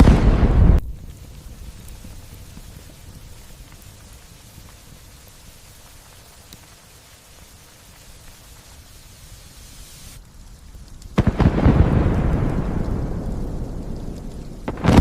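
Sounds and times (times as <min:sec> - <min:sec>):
thunderclap rumbling: 0:00.0 - 0:05.0, 0:11.1 - 0:15.0
light rain hiss: 0:00.0 - 0:15.0.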